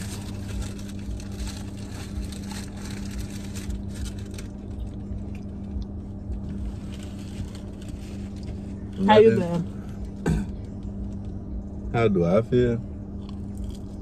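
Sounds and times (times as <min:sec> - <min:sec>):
low car cabin hum: 0:00.0 - 0:14.0
chewing and wet mouth noises: 0:13.2 - 0:14.0.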